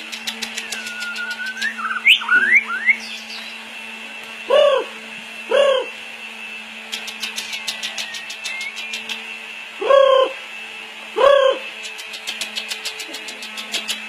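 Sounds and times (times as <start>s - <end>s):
bird singing clicks and whistles: 0.0s - 3.6s, 6.9s - 9.3s, 11.8s - 14.0s
steady low hum: 0.0s - 14.0s.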